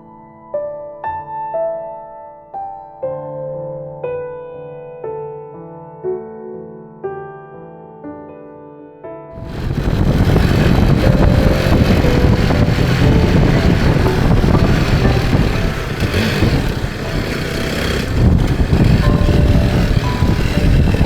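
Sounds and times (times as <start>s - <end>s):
motorcycle riding: 9.4s - 21.0s.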